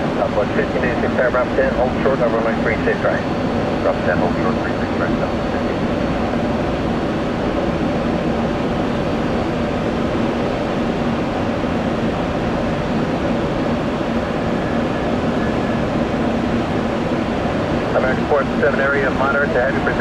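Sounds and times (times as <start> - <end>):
jet engines droning: 0.0 - 20.0.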